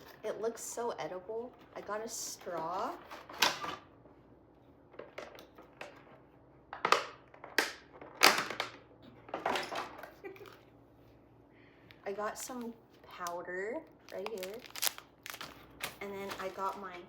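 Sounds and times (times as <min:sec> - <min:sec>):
packaging crinkling: 0:12.4 - 0:17.0.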